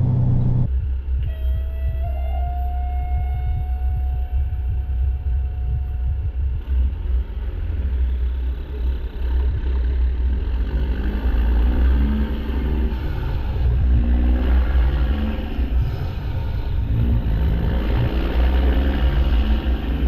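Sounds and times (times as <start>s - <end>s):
diesel truck engine rumbling: 0.0s - 20.0s.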